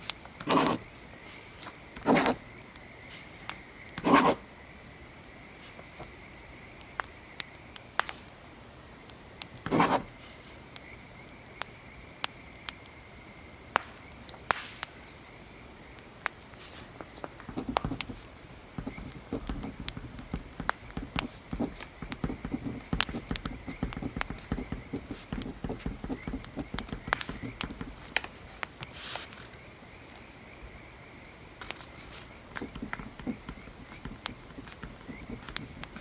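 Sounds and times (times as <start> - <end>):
faint steady hiss: 0.0 - 36.0
pencil scratching on paper: 0.5 - 0.8, 2.0 - 2.4, 4.0 - 4.4, 9.7 - 10.1, 17.4 - 28.2, 32.2 - 36.0
wood fire crackling and popping: 6.8 - 8.4, 13.8 - 15.0, 16.0 - 29.0, 31.6 - 36.0.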